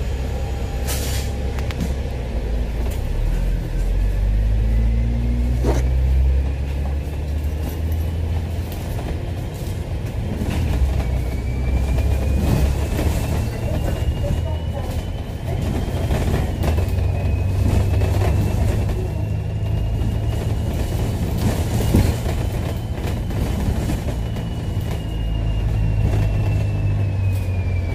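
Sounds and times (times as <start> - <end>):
bus engine rumble: 0.0 - 27.9.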